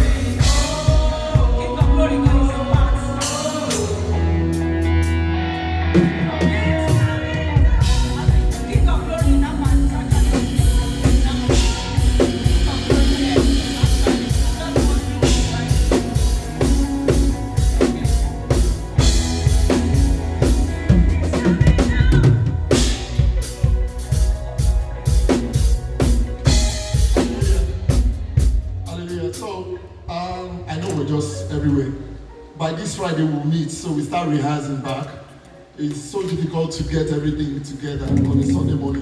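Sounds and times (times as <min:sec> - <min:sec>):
drum kit groove: 0:00.0 - 0:05.3, 0:06.0 - 0:29.6
live band playing: 0:00.0 - 0:32.6, 0:37.9 - 0:39.0.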